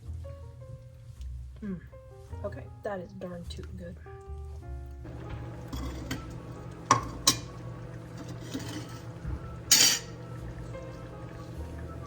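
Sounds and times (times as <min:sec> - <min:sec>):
faint background music: 0:00.0 - 0:12.0
utensil clinking against cookware: 0:05.1 - 0:11.5.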